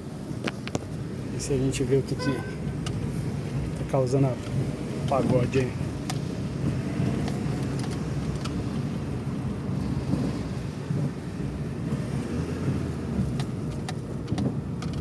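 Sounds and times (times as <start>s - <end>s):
car driving rumble: 0.0s - 15.0s.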